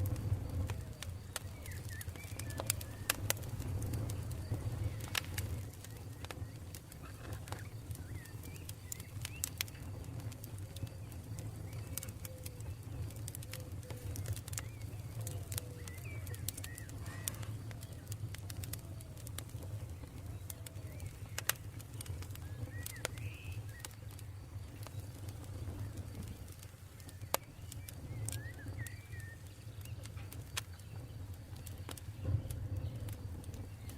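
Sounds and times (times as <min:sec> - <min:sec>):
campfire crackling: 0:00.0 - 0:33.9
birds chirping: 0:00.1 - 0:33.9.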